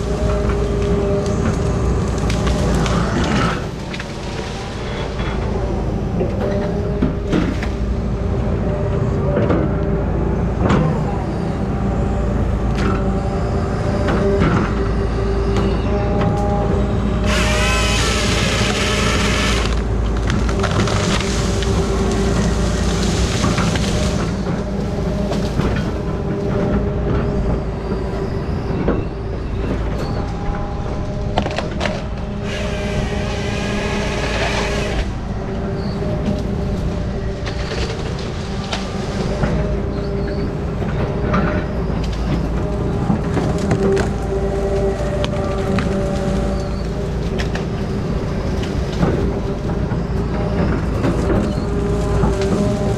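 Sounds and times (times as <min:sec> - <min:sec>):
machine engine running: 0:00.0 - 0:52.9
saw cutting through wood: 0:17.2 - 0:24.4, 0:32.4 - 0:35.2.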